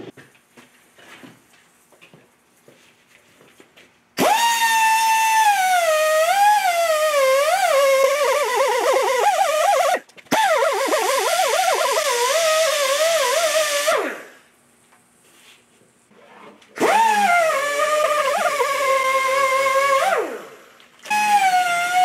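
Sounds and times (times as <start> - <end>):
power tool motor whining: 4.2 - 14.2, 16.8 - 22.0.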